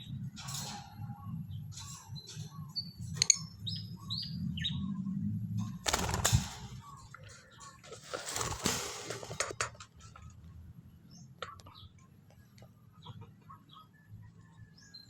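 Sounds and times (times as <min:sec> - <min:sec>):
small bird wings fluttering: 0:05.8 - 0:06.8, 0:07.9 - 0:09.6.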